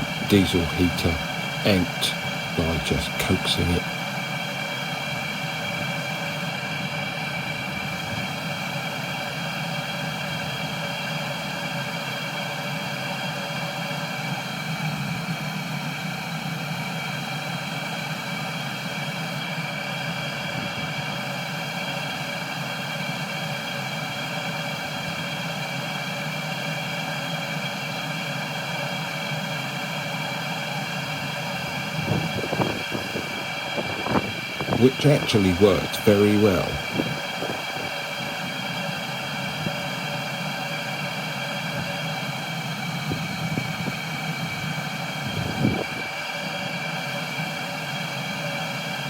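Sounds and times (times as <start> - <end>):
heater fan whine: 0.0 - 17.1, 28.6 - 49.0.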